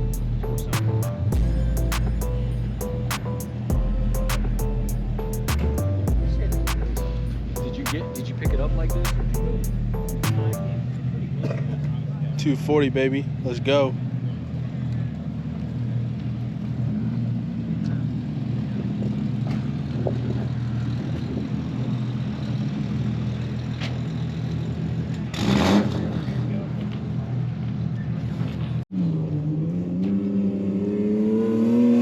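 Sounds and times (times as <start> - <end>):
car engine idling: 0.0 - 11.3
engine revving: 25.3 - 26.6, 29.0 - 32.0.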